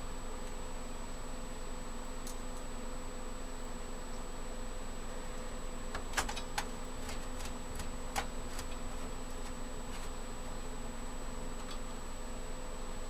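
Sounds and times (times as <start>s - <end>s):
electrical hum: 0.0s - 13.0s
faint high whine: 0.0s - 13.0s
metallic clicks of computer hardware: 5.9s - 10.1s, 11.6s - 11.8s.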